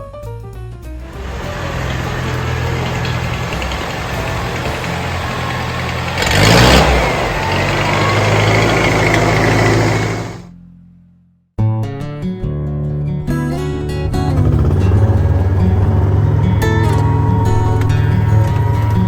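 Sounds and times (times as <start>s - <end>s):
tractor engine running: 1.0s - 10.5s, 14.4s - 19.0s.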